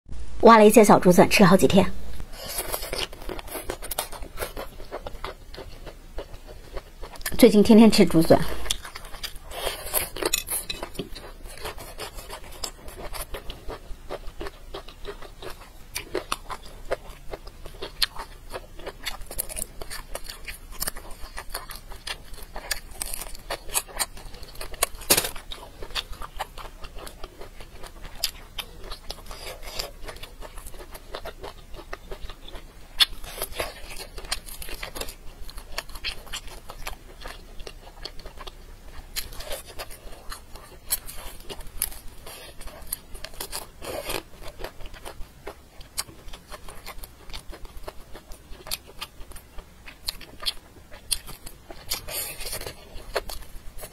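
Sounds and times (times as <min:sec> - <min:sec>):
biting and chewing crackles: 0:02.1 - 0:53.9.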